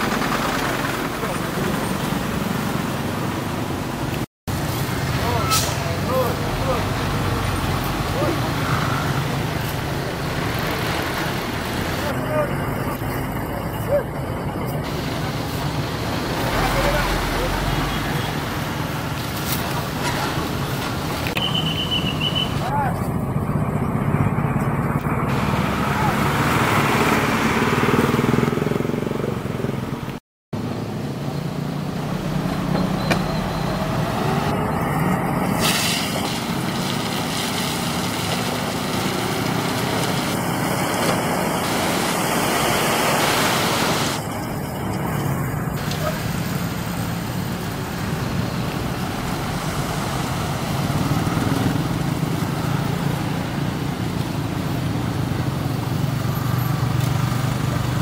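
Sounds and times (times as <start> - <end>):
truck diesel engine running: 0.0 - 3.1
outdoor road noise: 0.0 - 58.0.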